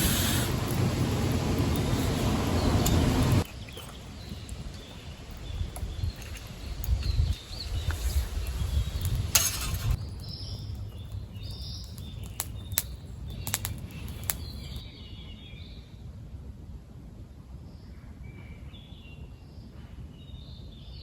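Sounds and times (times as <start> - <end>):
birds chirping: 0.0 - 14.9.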